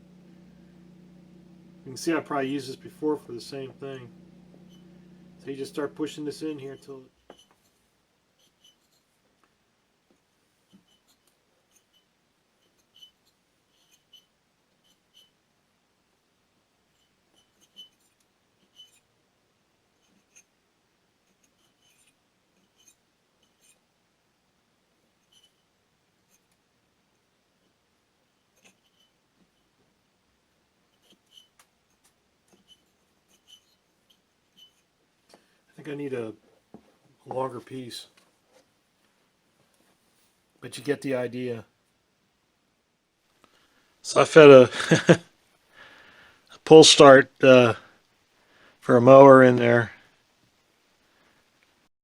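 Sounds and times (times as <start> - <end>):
cord ticking and scraping in engine: 0.0 - 7.0.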